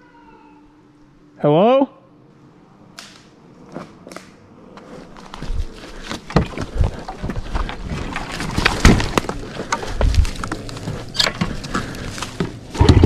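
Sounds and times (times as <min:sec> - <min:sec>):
twigs crackling and snapping: 0:05.2 - 0:13.0.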